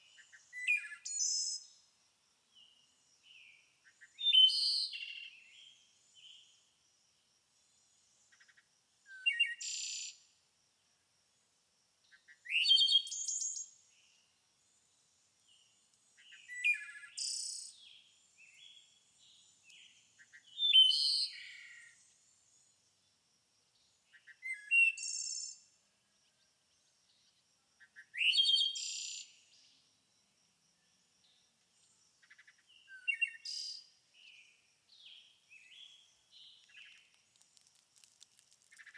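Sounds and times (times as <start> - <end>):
songbird chirping phrases: 0.0 - 1.9, 2.5 - 6.7, 15.4 - 22.7, 23.8 - 29.9, 30.8 - 37.2.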